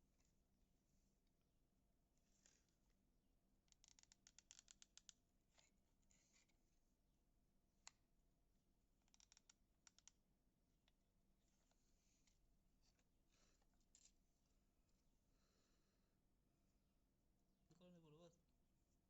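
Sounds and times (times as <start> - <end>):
faint light clicks and scratches: 3.7 - 6.6, 9.0 - 10.2, 10.8 - 14.5.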